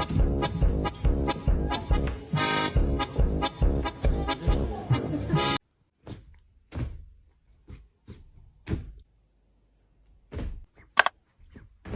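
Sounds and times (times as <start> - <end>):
music: 0.0 - 5.6.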